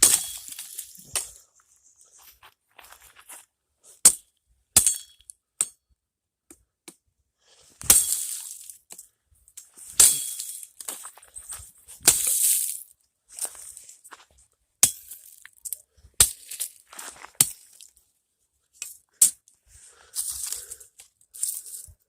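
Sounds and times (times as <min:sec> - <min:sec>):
brush crunching: 0:00.0 - 0:03.5, 0:09.6 - 0:14.4, 0:15.0 - 0:18.0.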